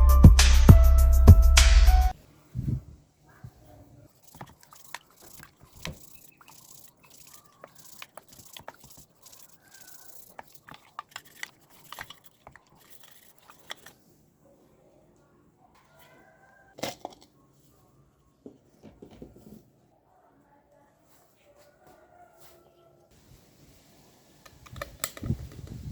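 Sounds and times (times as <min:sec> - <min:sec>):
small parts clicking and tapping: 0:04.2 - 0:13.9.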